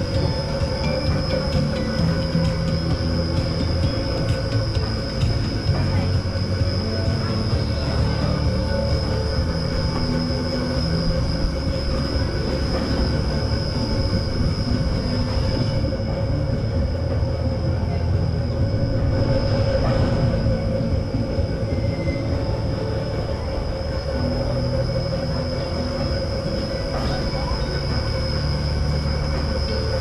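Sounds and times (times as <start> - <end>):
high even whine: 0.0 - 30.0
ride machinery low rumble: 0.0 - 30.0.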